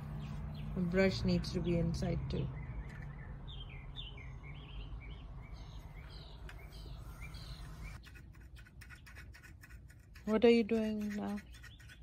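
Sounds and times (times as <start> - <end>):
birds chirping: 0.0 - 8.5, 10.8 - 12.0
quick scratchy scrapes: 7.0 - 12.0.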